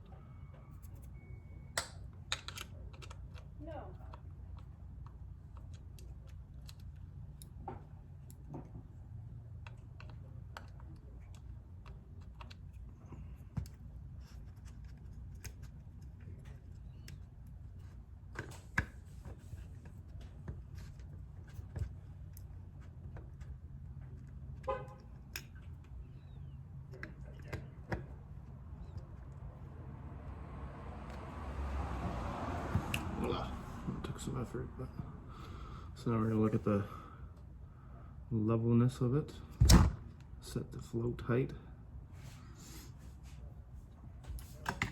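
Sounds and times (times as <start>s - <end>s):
screwdriver clicking on small parts: 1.8s - 3.5s.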